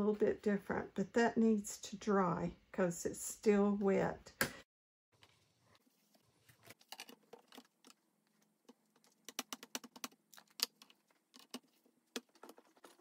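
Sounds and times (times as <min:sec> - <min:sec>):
small craft pieces tapping and clicking: 0:08.6 - 0:13.0.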